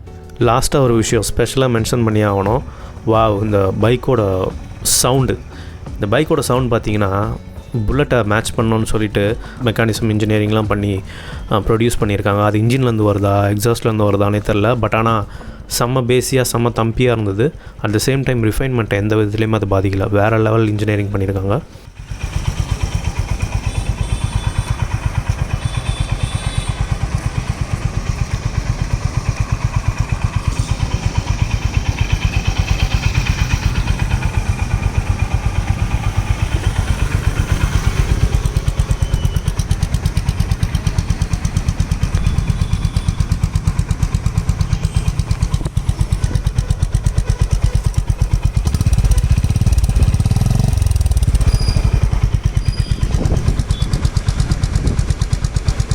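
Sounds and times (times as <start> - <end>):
motorcycle engine thumping: 1.9 - 13.3, 21.9 - 55.9.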